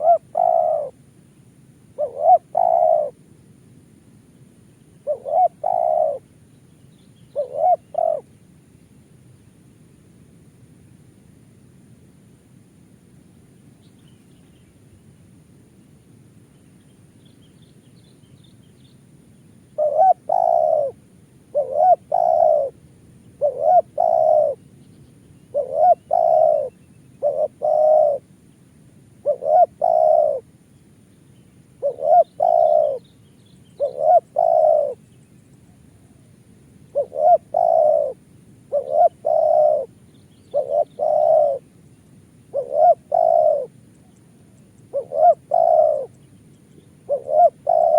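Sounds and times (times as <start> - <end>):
dove cooing: 0.0 - 1.0, 1.9 - 3.2, 5.0 - 6.3, 7.3 - 8.3, 19.8 - 22.8, 23.4 - 24.6, 25.5 - 28.3, 29.2 - 30.5, 31.8 - 33.1, 33.7 - 35.0, 36.9 - 41.7, 42.5 - 46.2, 46.8 - 47.9.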